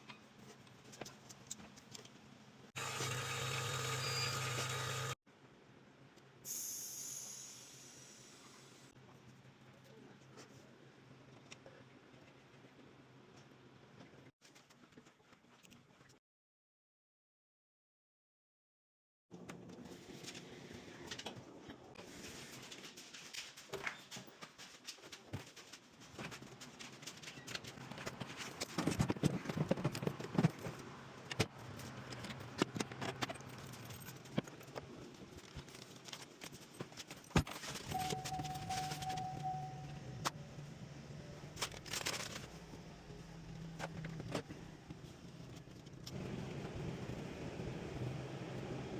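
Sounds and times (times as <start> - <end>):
short steady tone: 37.9 - 40.2.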